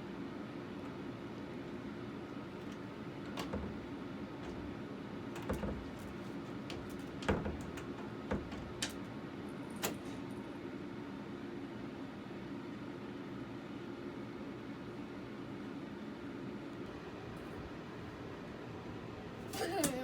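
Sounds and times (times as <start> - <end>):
steady room hum: 0.0 - 20.0
light knocks and clicks: 5.4 - 9.1.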